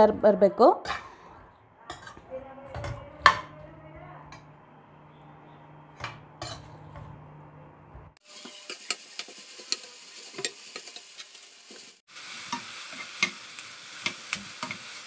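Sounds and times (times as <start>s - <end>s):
steel ladle scraping pan: 0.9s - 2.3s, 6.0s - 7.2s
vegetables sizzling in oil: 8.2s - 15.0s.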